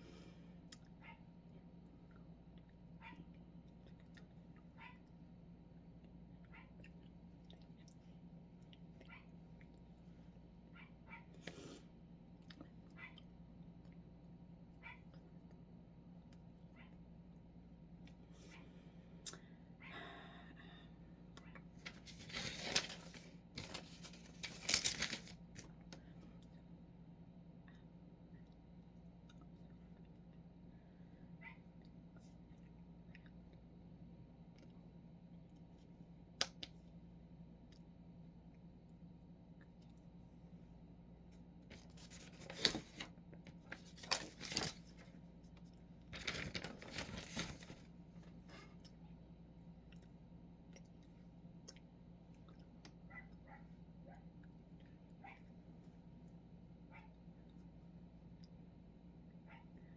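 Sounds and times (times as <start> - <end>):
low steady hum: 0.0 - 59.9
rustling and crinkling: 21.7 - 25.7, 41.7 - 48.6.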